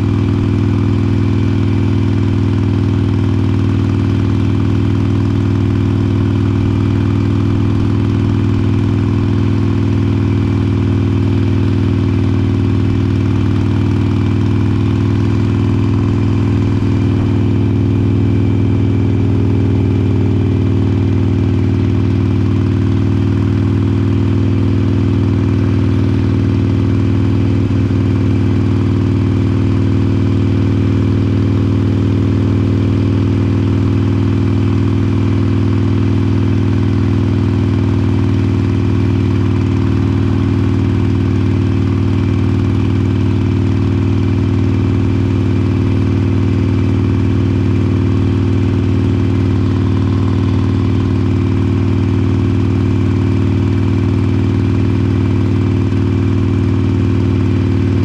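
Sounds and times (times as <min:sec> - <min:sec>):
motorcycle engine running steadily: 0:00.0 - 0:58.0.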